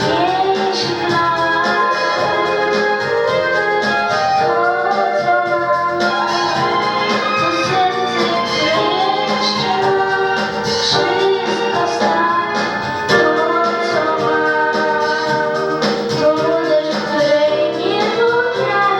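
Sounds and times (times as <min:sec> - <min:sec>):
instrumental accompaniment: 0:00.0 - 0:18.9
woman singing: 0:00.0 - 0:18.9.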